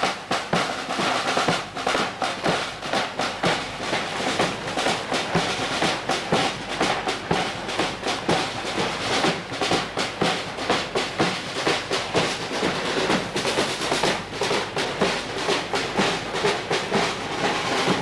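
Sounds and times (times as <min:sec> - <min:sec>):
parade drums marching rhythm: 0:00.0 - 0:18.0.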